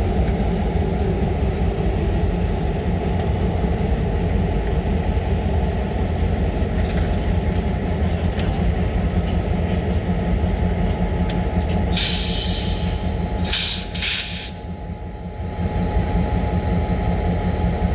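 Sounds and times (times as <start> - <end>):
freight train rumbling: 0.0 - 17.9
air brake hiss: 12.0 - 14.6.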